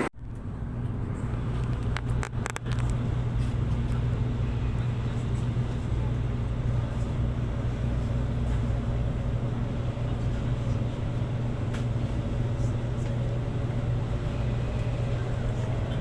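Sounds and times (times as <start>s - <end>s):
vehicle rumble and hum: 0.0s - 16.0s.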